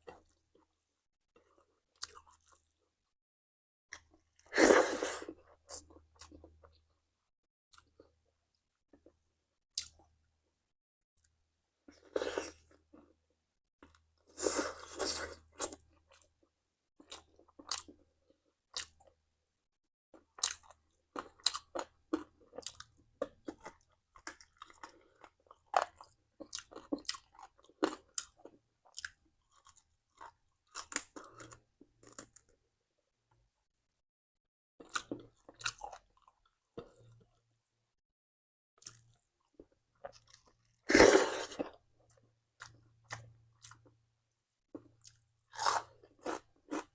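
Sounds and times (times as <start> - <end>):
person chewing crunchy food: 1.4 - 2.8, 17.0 - 19.1, 20.2 - 32.6, 34.8 - 37.4, 38.8 - 44.0, 44.7 - 46.9.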